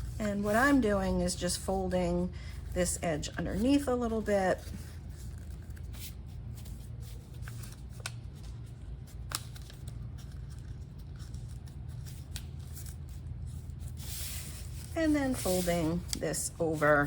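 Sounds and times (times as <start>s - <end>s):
low steady hum: 0.0s - 17.0s
paper rustling and crinkling: 3.5s - 17.0s.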